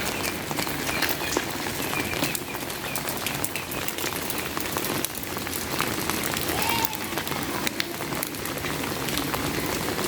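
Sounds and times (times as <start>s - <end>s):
raindrops tapping: 0.0s - 10.0s
steady rain: 0.0s - 10.0s.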